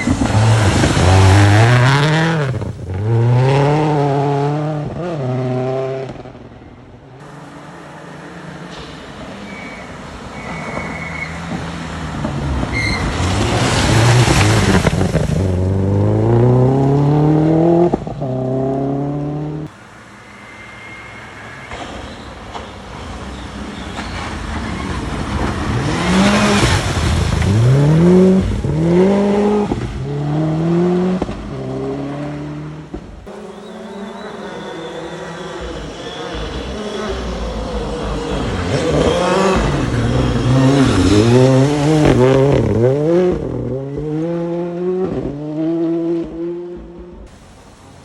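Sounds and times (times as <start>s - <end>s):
tyre noise rush: 0.0s - 5.0s, 32.9s - 44.2s
engine accelerating with upshifts: 0.0s - 7.8s, 10.8s - 19.7s, 24.2s - 47.9s
rally cars passing at speed: 0.0s - 48.0s.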